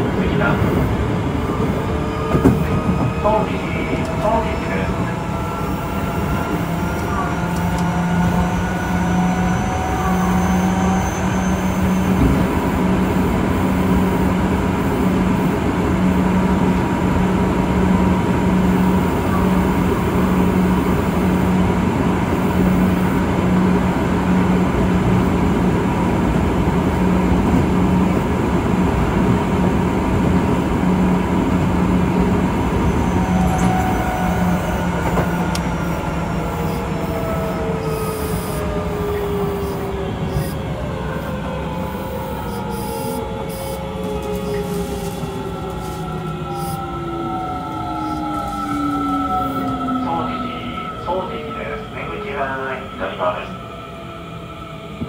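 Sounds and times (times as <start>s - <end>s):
traction motor whine: 33.0s - 50.2s.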